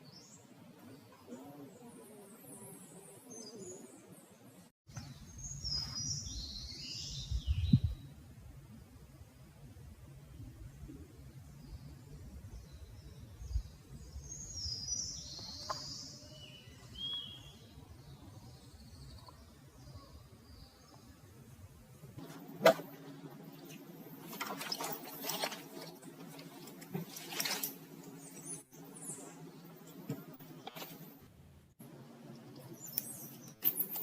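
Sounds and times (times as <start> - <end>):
birds chirping: 0.0 - 8.1, 10.4 - 21.4, 22.2 - 31.2, 32.3 - 34.0
faint outdoor background: 0.0 - 34.0
rustling handling noises: 22.2 - 28.5.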